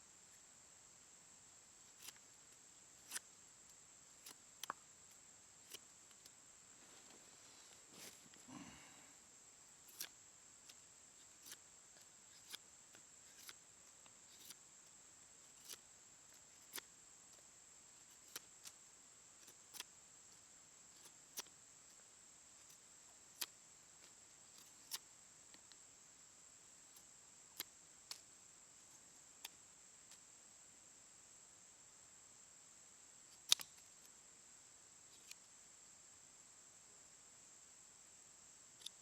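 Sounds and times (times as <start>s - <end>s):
faint sharp clicks: 33.3s - 34.2s.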